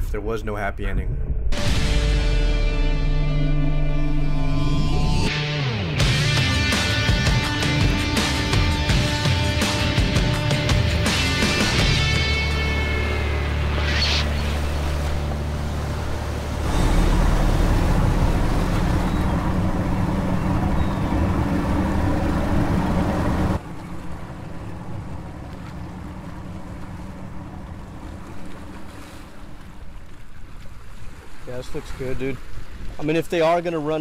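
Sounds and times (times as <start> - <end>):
loud rumble: 0.7 - 28.5
water: 7.6 - 34.0.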